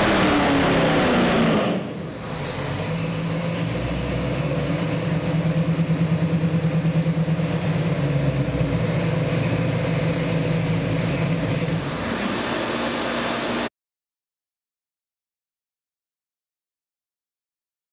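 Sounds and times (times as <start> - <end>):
engine idling with rhythmic pulse: 0.0 - 11.8.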